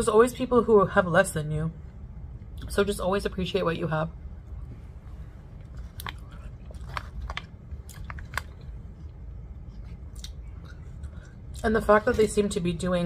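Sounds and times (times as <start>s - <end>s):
person chewing soft pasta: 5.5s - 11.6s.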